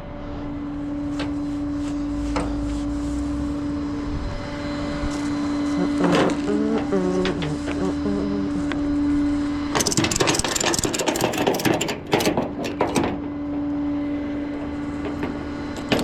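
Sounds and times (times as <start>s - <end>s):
tow truck engine humming: 0.0s - 16.0s
stepped pitched tone: 5.5s - 9.4s
sharp clicks and knocks: 9.8s - 13.6s, 14.6s - 16.0s.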